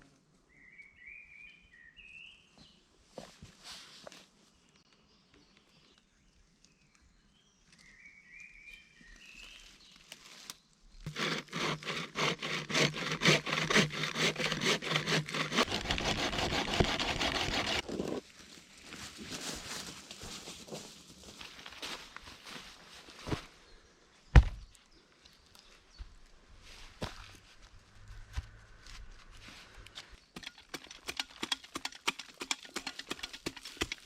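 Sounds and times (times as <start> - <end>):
hand saw cutting wood: 11.1 - 18.2, 30.4 - 34.0.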